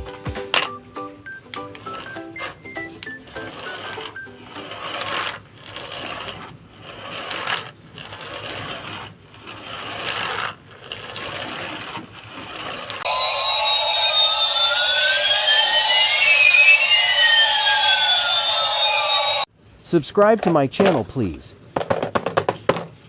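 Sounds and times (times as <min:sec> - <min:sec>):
small motor whirring: 0:00.6 - 0:19.5
electronic toy jingle: 0:13.1 - 0:19.5.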